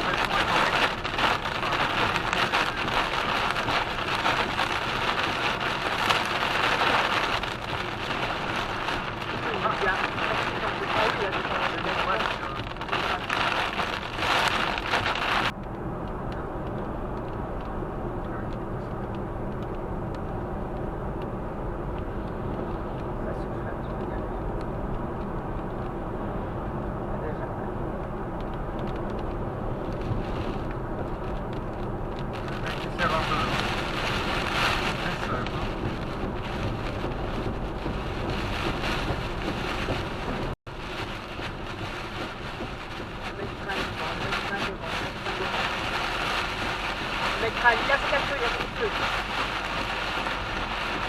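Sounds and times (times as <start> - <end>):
hiss of rain and spray: 0.0 - 15.5, 32.3 - 51.0
road and engine drone: 0.0 - 51.0.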